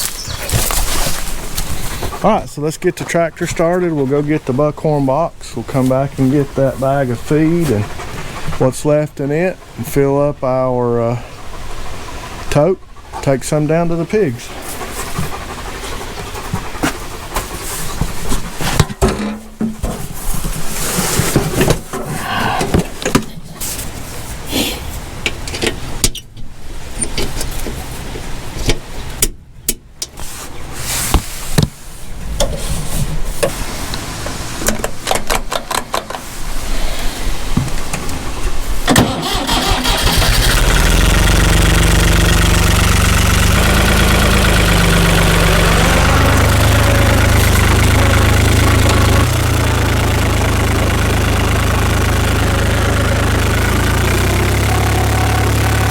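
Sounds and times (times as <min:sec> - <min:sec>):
tractor engine starting: 0:00.1 - 0:04.7, 0:12.3 - 0:18.8, 0:38.2 - 0:55.9.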